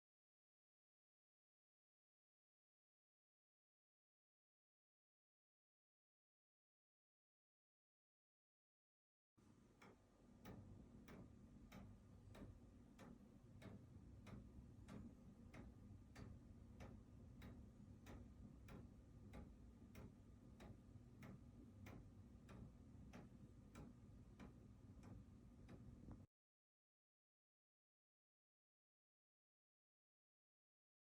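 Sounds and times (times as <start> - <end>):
low steady hum: 9.4 - 26.3
mechanical clock ticking: 9.8 - 26.2.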